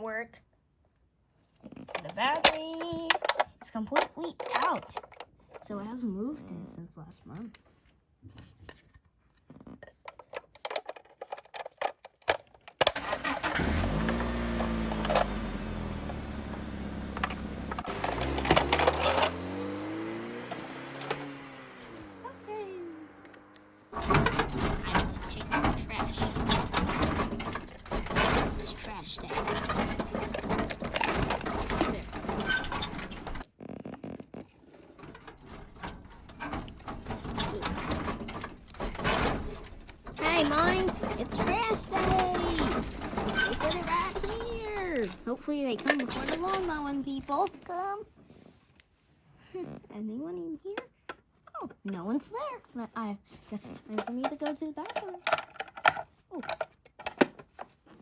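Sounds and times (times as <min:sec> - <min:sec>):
car engine idling and revving: 0:12.9 - 0:33.4, 0:35.6 - 0:47.6.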